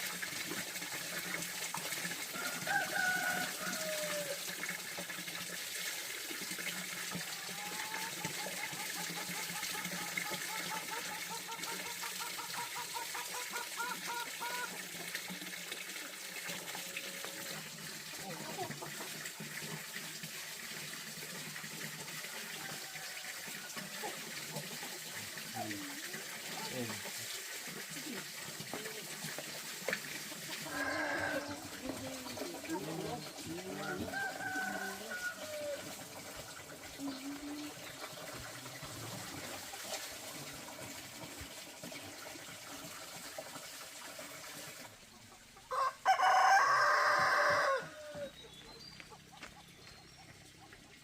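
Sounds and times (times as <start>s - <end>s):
water running: 0.0s - 51.0s
rooster crowing: 2.3s - 4.4s, 30.7s - 31.6s, 33.7s - 35.8s, 45.7s - 48.4s.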